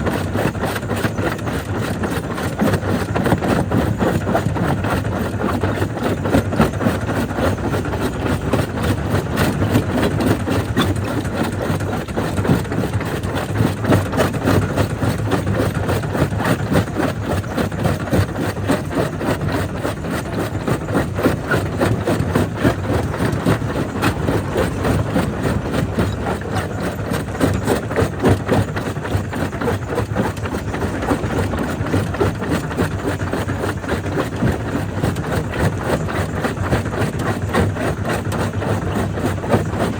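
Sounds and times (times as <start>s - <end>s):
low machine hum: 20.3s - 28.1s.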